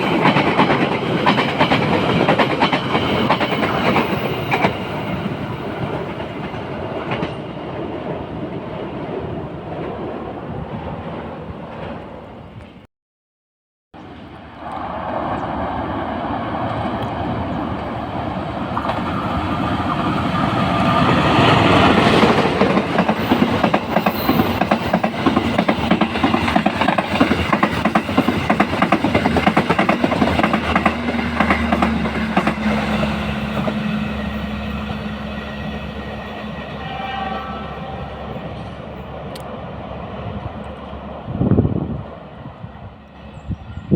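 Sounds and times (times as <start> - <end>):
train wheels click-clacking: 0.0 - 7.5, 18.7 - 33.9
train rumbling: 0.0 - 12.8, 14.0 - 43.9.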